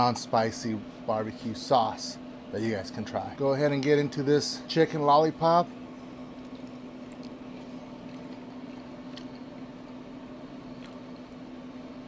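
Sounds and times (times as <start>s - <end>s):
low background hum: 0.0s - 12.0s
man chewing mouth sounds: 5.9s - 12.0s.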